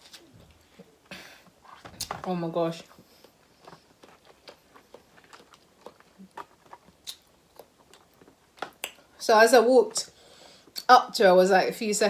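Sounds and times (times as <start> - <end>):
chewing seafood: 2.8 - 9.2.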